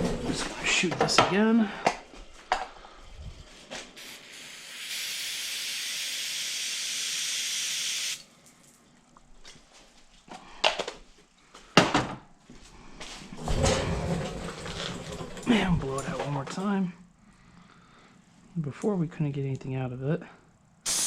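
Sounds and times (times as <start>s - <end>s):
aerosol spray hiss: 4.0s - 8.2s.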